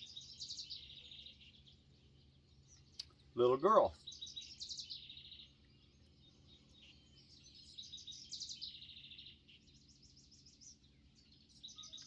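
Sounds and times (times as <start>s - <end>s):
faint songbirds singing: 0.0s - 12.0s.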